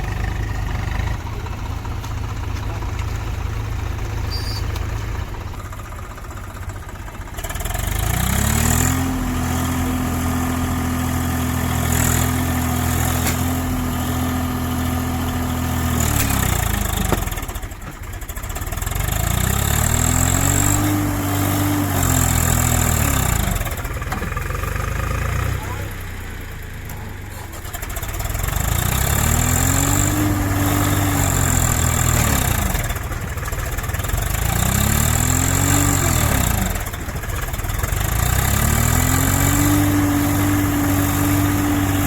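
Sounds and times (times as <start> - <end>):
tractor diesel engine revving: 0.0 - 42.0.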